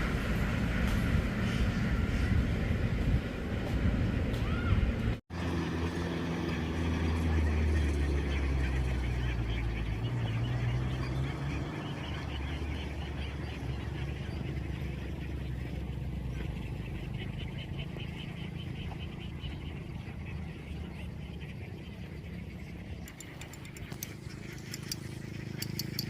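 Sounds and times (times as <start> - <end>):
engine humming: 0.0 - 26.0
ducks quacking: 6.3 - 26.0.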